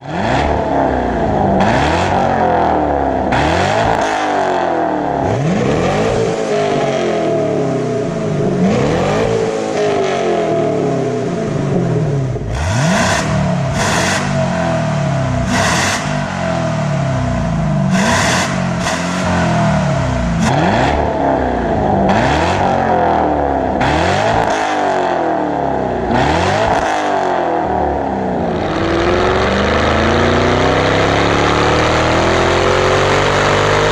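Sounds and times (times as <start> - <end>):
car engine revving: 0.0 - 33.9.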